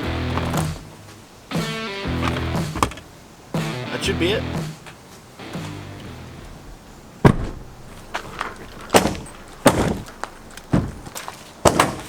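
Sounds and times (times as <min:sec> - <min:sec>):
sharp knocks and bangs: 0:07.2 - 0:12.0.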